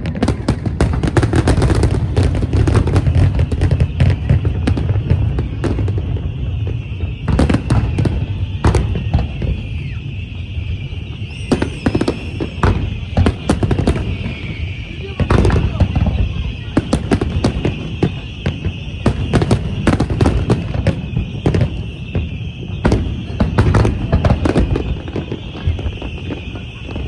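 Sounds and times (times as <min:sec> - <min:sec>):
fireworks bangs and crackles: 0:00.0 - 0:27.0
rising firework whistles: 0:00.0 - 0:27.0
steady high whine: 0:11.1 - 0:13.4.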